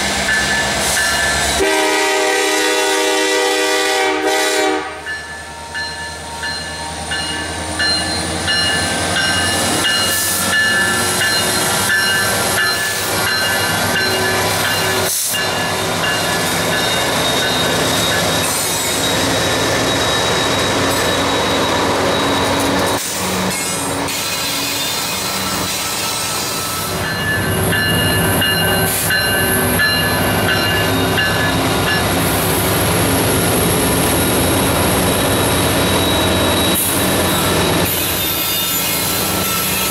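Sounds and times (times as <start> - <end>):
freight train rumble and clatter: 0.0 - 39.9
train wheels squealing: 5.1 - 39.9.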